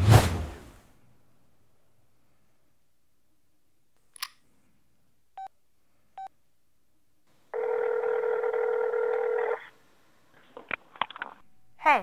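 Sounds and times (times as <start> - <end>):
phone ringback tone: 7.6 - 9.6.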